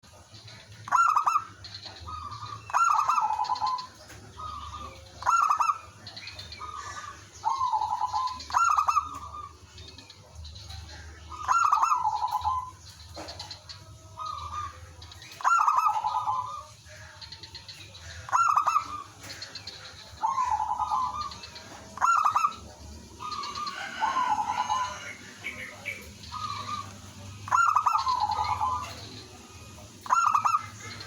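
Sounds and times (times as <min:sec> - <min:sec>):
doves cooing: 0:00.0 - 0:31.0.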